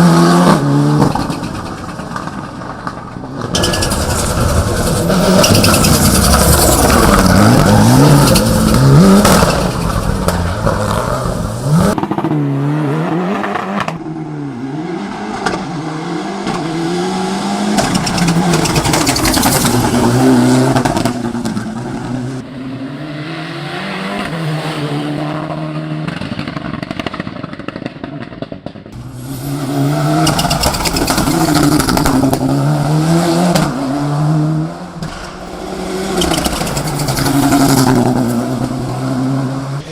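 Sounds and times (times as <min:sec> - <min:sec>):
turbocharged car engine revving: 0:03.5 - 0:22.4, 0:29.0 - 0:39.9.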